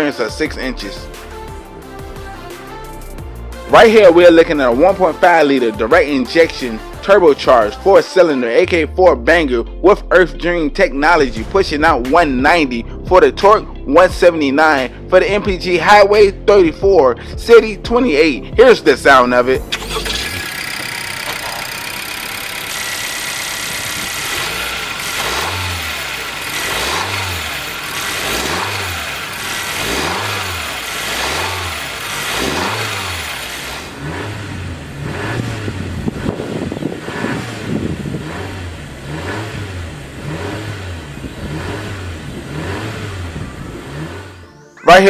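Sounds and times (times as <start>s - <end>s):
car engine idling and revving: 0.0s - 7.9s, 18.5s - 44.8s.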